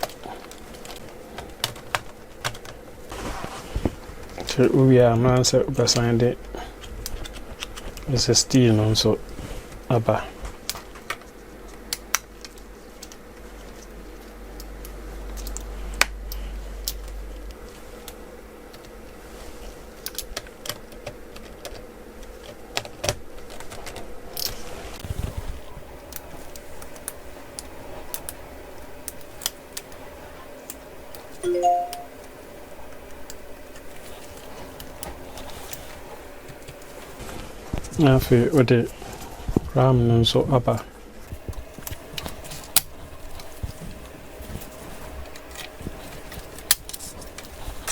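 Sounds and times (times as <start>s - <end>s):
rising electronic chime: 31.4s - 32.1s.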